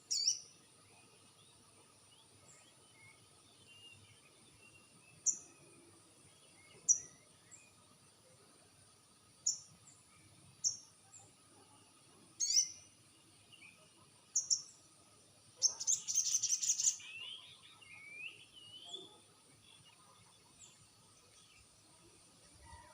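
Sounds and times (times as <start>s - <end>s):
bird chirps and trills: 0.0s - 1.0s, 12.4s - 14.9s, 15.6s - 21.8s.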